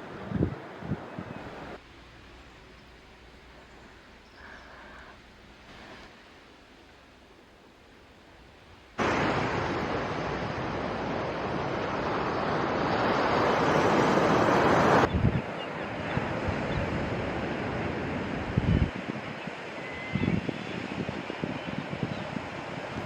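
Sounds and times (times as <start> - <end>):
wind buffeting microphone: 0.0 - 1.8, 10.4 - 23.0
surf: 9.0 - 23.0.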